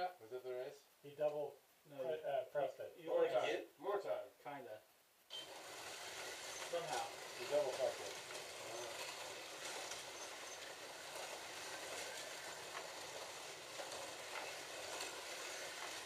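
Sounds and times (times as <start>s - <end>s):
slot cars whirring: 5.3s - 16.0s.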